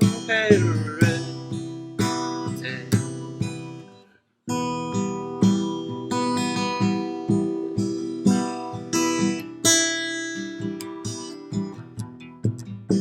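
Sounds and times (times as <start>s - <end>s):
person singing gliding word: 0.0s - 1.4s, 2.6s - 3.0s
strummed acoustic guitar: 0.0s - 13.0s.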